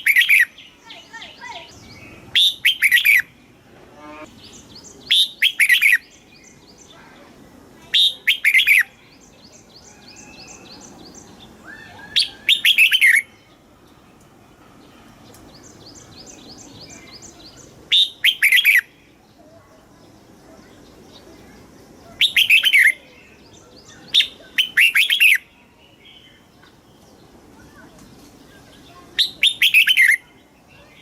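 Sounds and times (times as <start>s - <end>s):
bird warbling phrases: 0.0s - 3.3s, 6.9s - 9.2s, 11.6s - 13.3s, 22.0s - 25.4s, 28.9s - 31.0s.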